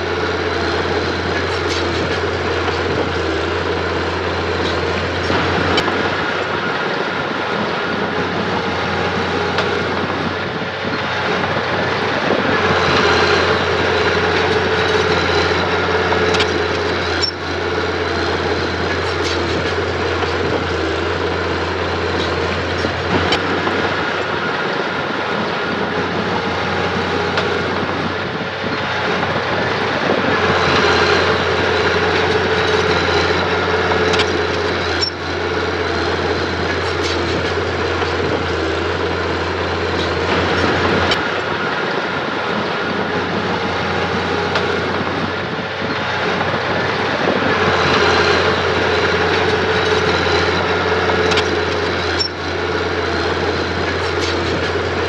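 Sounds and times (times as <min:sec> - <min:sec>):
diesel engine under load: 0:00.0 - 0:55.0
metallic clanks from tracks: 0:30.5 - 0:38.7.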